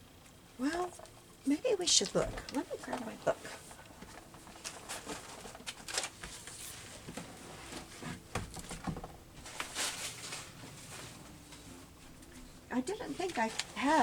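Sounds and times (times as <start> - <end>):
book pages rustling: 2.0 - 14.0.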